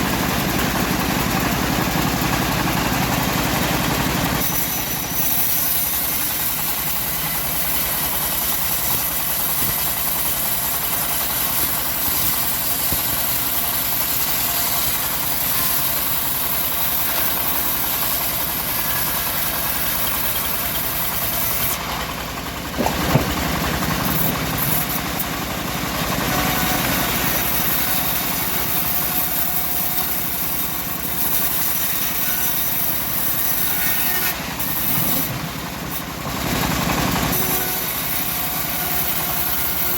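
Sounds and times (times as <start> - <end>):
bandsaw mill cutting log: 0.0 - 39.9
sharp knock: 22.8 - 23.6.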